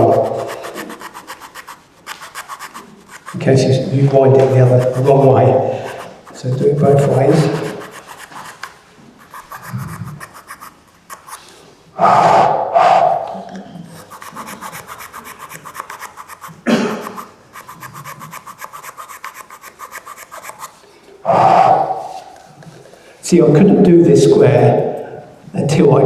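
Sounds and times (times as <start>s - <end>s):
file rasping in wood: 0.0s - 11.6s, 13.9s - 20.8s.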